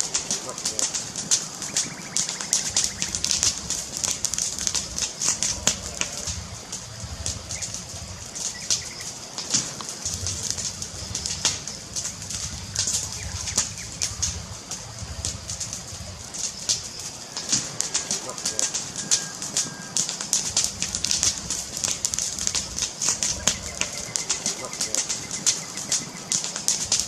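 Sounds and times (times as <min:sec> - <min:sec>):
fire hiss: 0:00.0 - 0:27.0
low fluttering rumble: 0:00.0 - 0:27.0
wood fire popping and snapping: 0:00.0 - 0:27.0.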